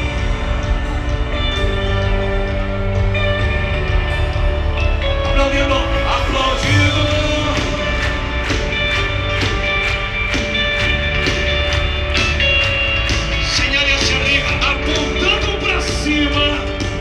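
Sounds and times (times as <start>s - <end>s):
driving drum beat: 5.3s - 17.0s.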